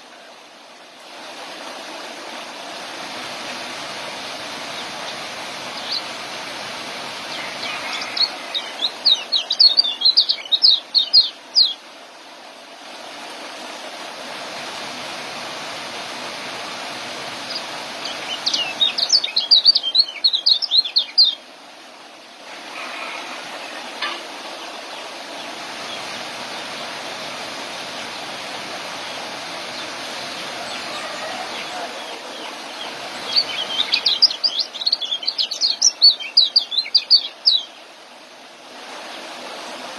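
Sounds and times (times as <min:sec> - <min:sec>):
background hiss: 0:00.0 - 0:39.9
songbird chattering chirps: 0:07.4 - 0:11.8, 0:18.0 - 0:21.4, 0:30.7 - 0:37.8.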